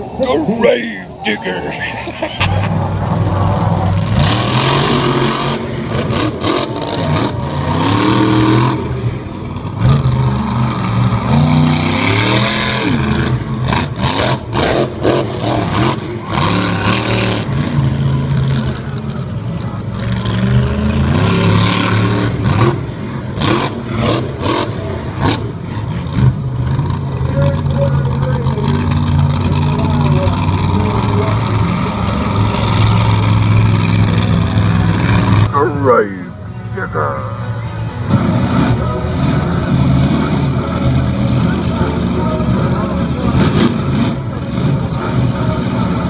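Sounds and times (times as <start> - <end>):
truck engine revving: 0.0 - 35.8, 37.3 - 46.0.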